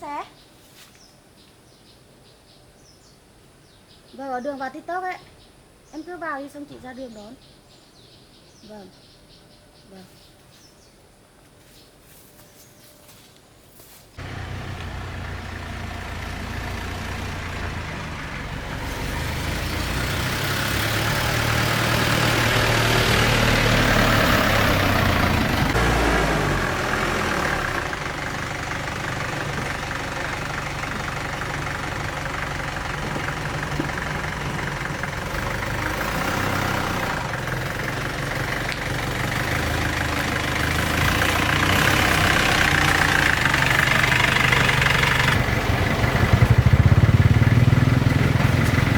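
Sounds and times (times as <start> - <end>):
vehicle engine running: 14.2 - 48.9.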